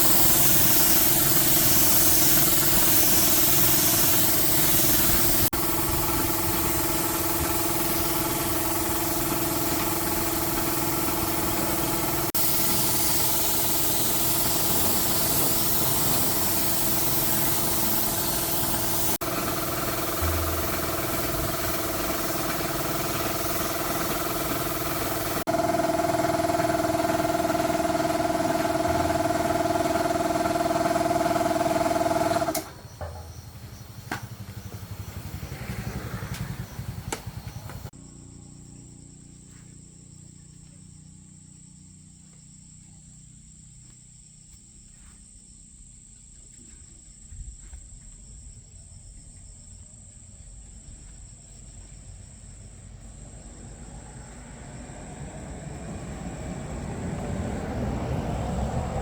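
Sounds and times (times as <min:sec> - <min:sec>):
motorbike engine running: 0:00.0 - 0:40.3.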